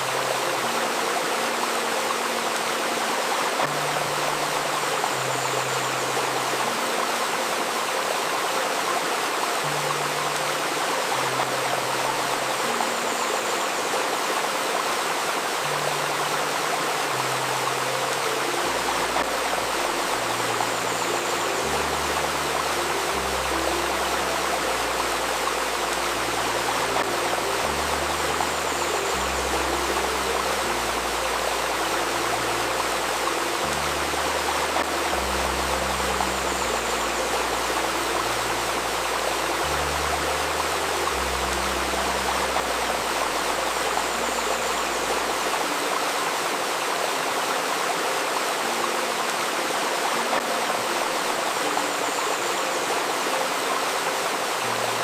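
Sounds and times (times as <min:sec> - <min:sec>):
soft low music notes: 0:00.0 - 0:55.0
stream running over stones: 0:00.0 - 0:55.0.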